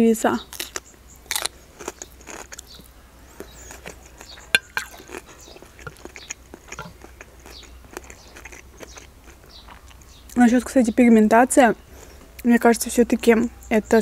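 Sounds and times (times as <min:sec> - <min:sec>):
wet chewing mouth clicks: 0:00.5 - 0:10.4
fork clinking on a plate: 0:04.5 - 0:05.1.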